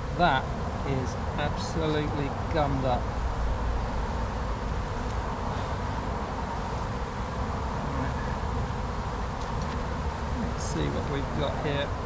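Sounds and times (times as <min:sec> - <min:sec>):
bees buzzing: 0:04.0 - 0:12.0.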